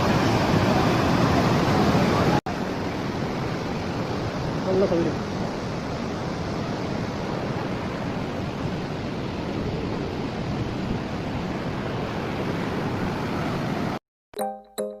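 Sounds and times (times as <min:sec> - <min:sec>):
stream water rushing over rocks: 0:00.0 - 0:08.1.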